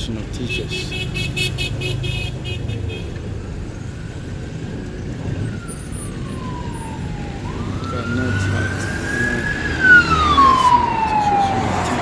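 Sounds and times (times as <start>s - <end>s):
vehicles passing: 0.0s - 12.0s
siren sliding down: 4.8s - 12.0s.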